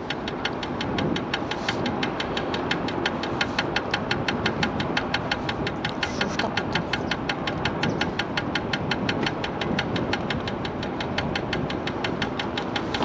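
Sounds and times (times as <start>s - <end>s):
road and wind rumble: 0.0s - 13.0s
ticking knock from scooter wheel: 0.0s - 13.0s.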